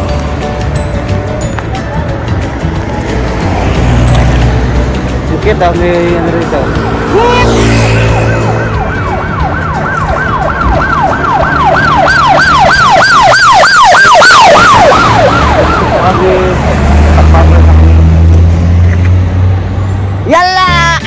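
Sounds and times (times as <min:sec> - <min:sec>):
street traffic hum: 0:00.0 - 0:21.0
emergency vehicle siren yelping: 0:07.2 - 0:16.6.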